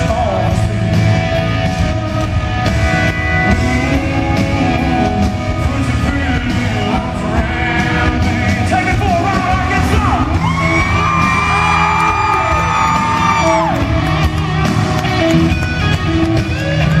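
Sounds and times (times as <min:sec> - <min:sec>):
country rock band playing: 0:00.0 - 0:17.0
person singing: 0:03.2 - 0:13.8
crowd yelling along: 0:09.6 - 0:15.8.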